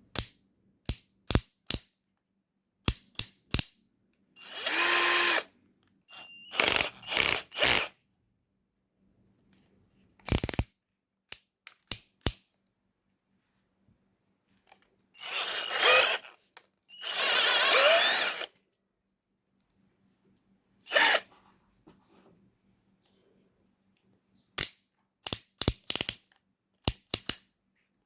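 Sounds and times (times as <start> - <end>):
cordless drill running: 4.4 - 5.5, 6.1 - 7.9, 15.2 - 16.3, 16.9 - 18.5, 20.9 - 21.2.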